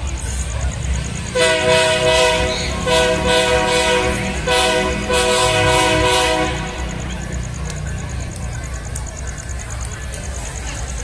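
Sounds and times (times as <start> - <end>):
locomotive air horn blasts: 1.4 - 7.0.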